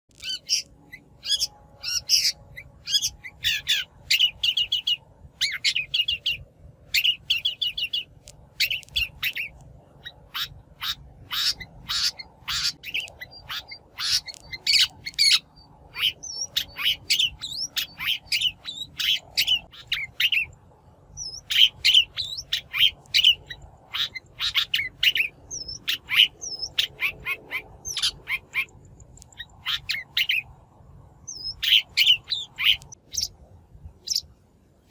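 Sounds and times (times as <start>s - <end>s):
shrike harsh chattering calls: 7.0s - 20.5s.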